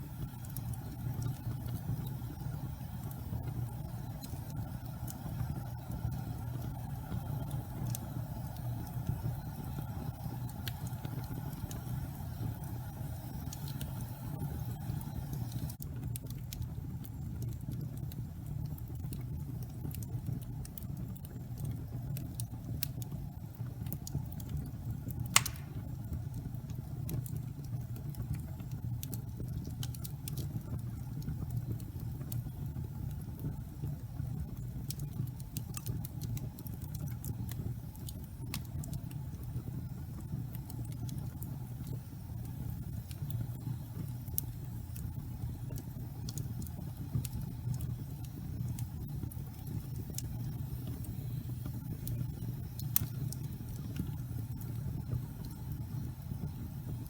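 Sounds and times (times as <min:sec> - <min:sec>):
fire crackling: 0:00.0 - 0:57.0
low rumble of flame: 0:00.0 - 0:57.0
loud fire pop: 0:25.3 - 0:26.0.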